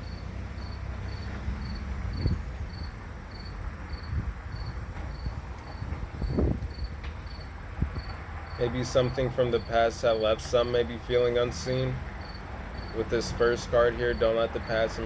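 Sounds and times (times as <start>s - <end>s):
cricket chirping: 0.0s - 8.6s, 12.2s - 13.0s.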